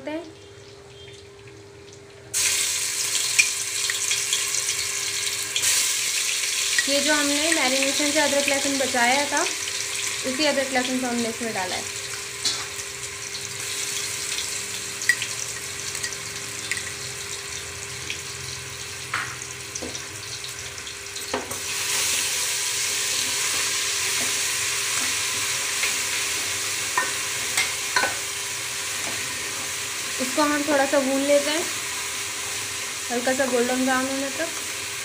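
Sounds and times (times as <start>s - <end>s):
paste sizzling in hot oil: 2.3s - 35.0s.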